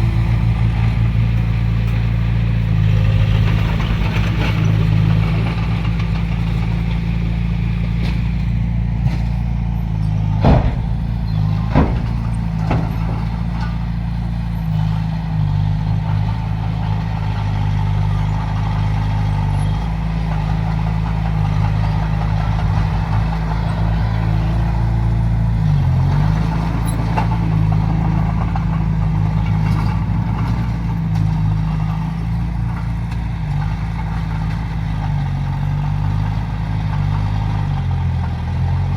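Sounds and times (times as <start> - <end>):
diesel engine running: 0.0 - 38.9
sharp knocks: 10.3 - 14.4.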